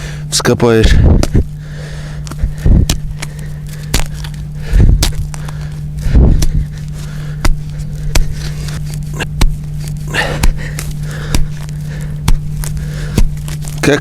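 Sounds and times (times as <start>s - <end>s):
hatchet chopping frozen ground: 0.8s - 14.0s
hatchet scraping: 2.2s - 14.0s.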